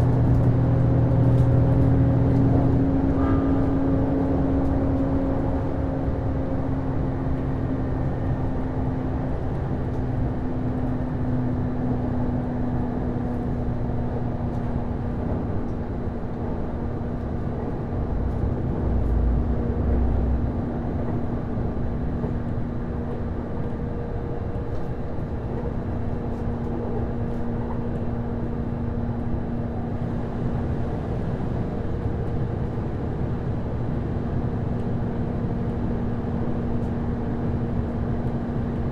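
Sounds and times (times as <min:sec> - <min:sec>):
train drive hum: 0:00.0 - 0:38.9
wheel-on-rail rumble: 0:00.0 - 0:38.9
louder low rumble passing: 0:17.4 - 0:22.5.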